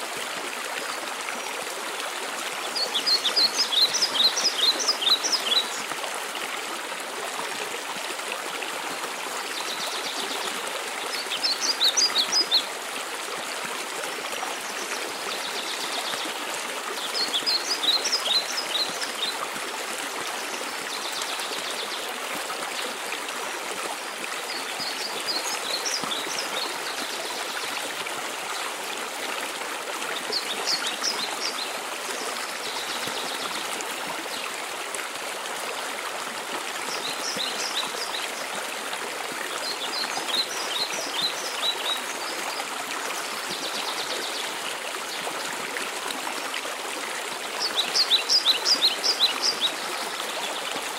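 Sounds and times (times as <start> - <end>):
songbird singing: 2.7 - 5.9.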